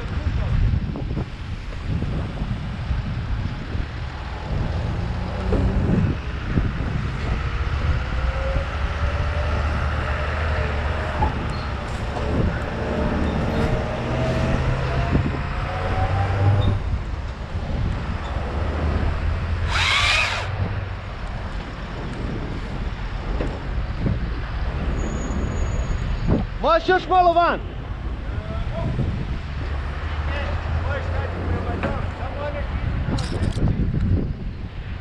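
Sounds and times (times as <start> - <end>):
wind noise: 0.0 - 35.0
engine running steadily: 1.5 - 25.1.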